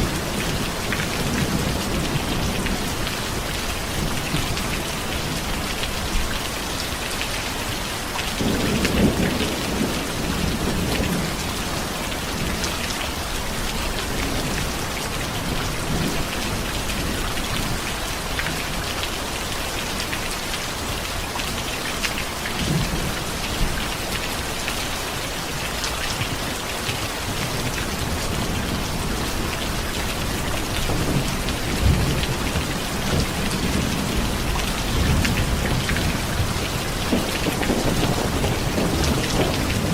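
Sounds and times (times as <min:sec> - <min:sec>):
heavy rain falling: 0:00.0 - 0:39.9
thunder rumbling: 0:08.4 - 0:12.8, 0:27.5 - 0:39.9.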